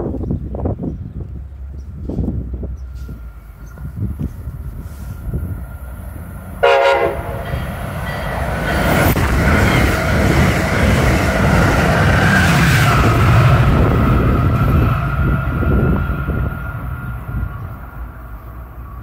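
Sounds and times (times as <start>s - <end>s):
train wheels rumbling on rails: 0.0s - 19.0s
train horn blast: 6.6s - 7.7s.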